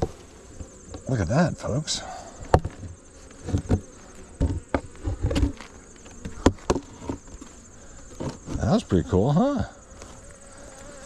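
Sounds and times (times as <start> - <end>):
clicks and knocks of hive equipment: 0.0 - 1.2, 2.4 - 8.9
bees buzzing: 0.0 - 11.0.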